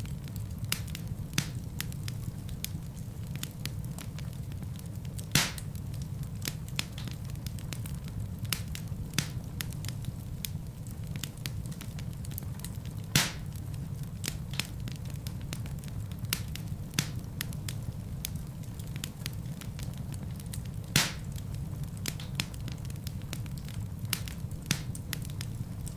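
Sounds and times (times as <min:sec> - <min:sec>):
fire pops: 0:00.0 - 0:25.9
wood fire crackling: 0:00.0 - 0:25.9.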